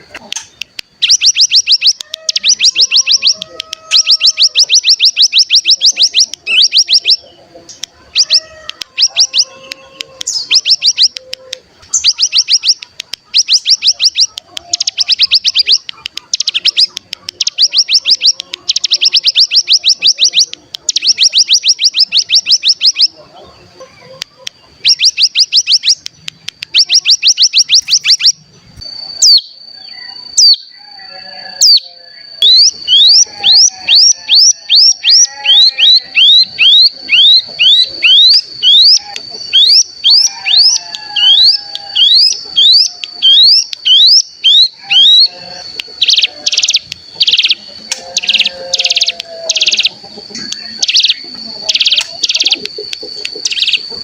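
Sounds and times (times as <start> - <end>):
thin steady high whistle: 26.7 - 52.7
bird rattling trills: 50.7 - 52.7.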